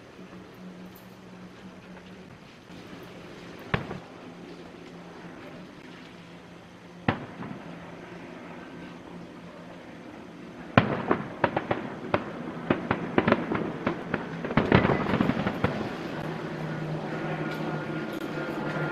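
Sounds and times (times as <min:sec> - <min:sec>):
fireworks bangs and crackles: 0:02.3 - 0:04.1, 0:07.0 - 0:08.1, 0:10.6 - 0:18.9.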